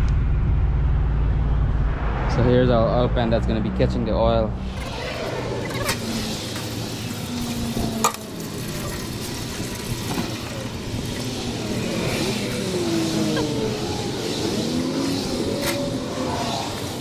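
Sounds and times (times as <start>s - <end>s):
oil trickling into a pan: 5.7s - 12.6s.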